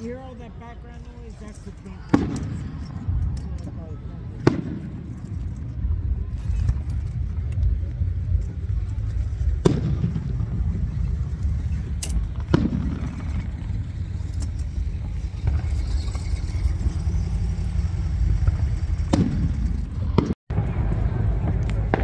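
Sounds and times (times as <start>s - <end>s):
steady low rumble: 0.0s - 22.0s
firework bangs: 2.0s - 3.2s, 4.3s - 5.4s, 9.0s - 22.0s.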